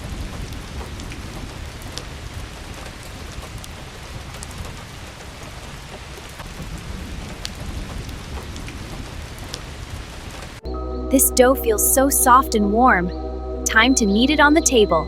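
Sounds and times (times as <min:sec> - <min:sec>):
rain falling on a roof: 0:00.0 - 0:10.7.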